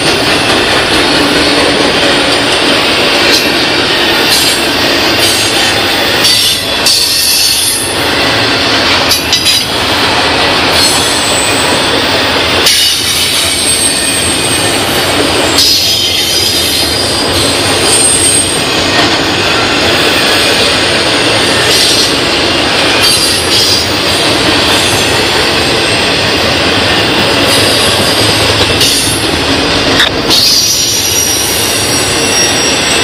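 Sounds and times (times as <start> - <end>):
train wheels rumbling on rail: 0.0 - 33.0
high-pitched wheel squeals: 10.8 - 14.8, 15.5 - 18.9, 30.3 - 33.0.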